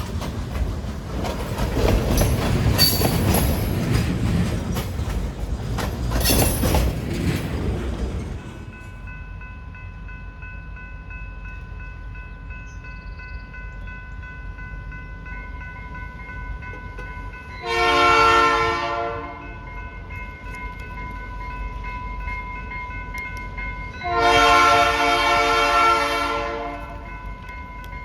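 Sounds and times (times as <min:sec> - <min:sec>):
low rumble of train: 0:00.0 - 0:28.0
train horn blast: 0:17.6 - 0:19.6, 0:24.0 - 0:27.1.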